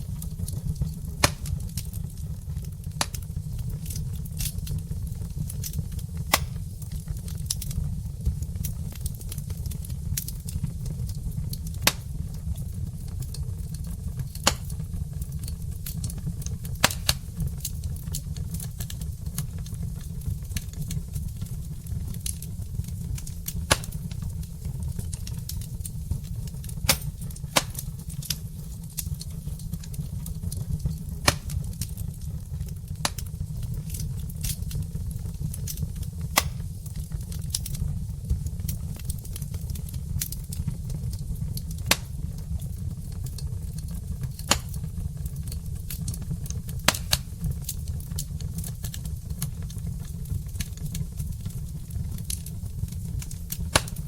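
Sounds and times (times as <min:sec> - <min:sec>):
fire crackling and popping: 0:00.0 - 0:54.0
fire low rumble: 0:00.0 - 0:54.0.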